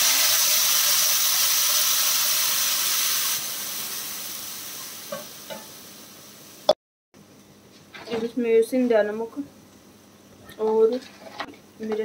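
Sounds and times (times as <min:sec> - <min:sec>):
tomato puree sizzling in oil: 0:00.0 - 0:06.8.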